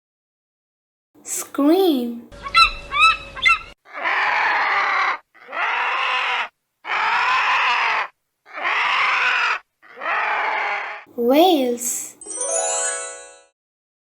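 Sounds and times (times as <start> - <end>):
vulture screaming: 2.4 - 11.1.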